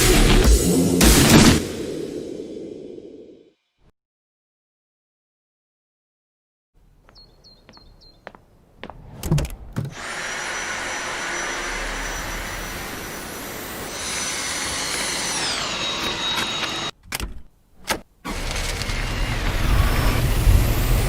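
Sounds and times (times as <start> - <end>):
vacuum cleaner whining: 10.0 - 16.9, 18.3 - 21.0.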